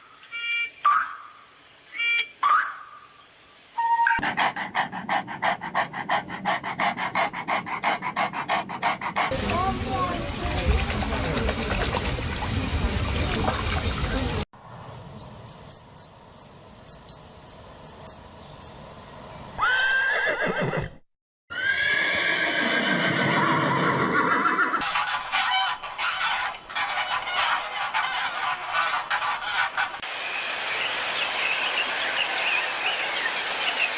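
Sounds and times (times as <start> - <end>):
horse whinnying: 19.6 - 24.8.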